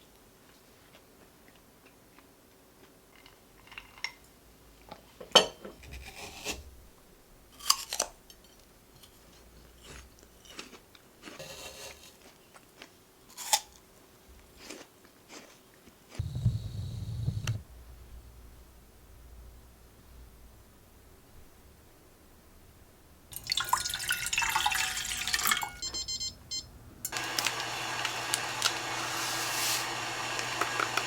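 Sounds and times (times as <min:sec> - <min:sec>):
faint steady hum: 0:16.2 - 0:29.2.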